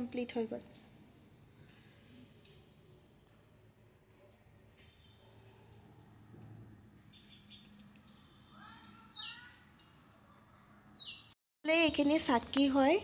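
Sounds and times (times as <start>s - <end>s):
faint bird chirps: 7.1s - 11.4s.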